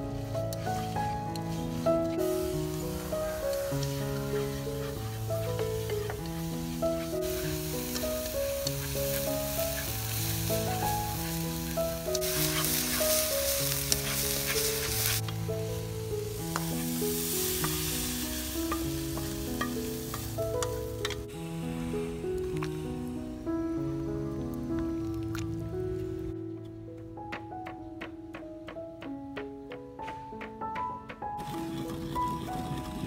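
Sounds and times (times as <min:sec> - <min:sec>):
meat sizzling in a wok: 0:00.0 - 0:24.2
soft background music: 0:00.0 - 0:33.0
wooden spatula scraping a pan: 0:00.6 - 0:15.4.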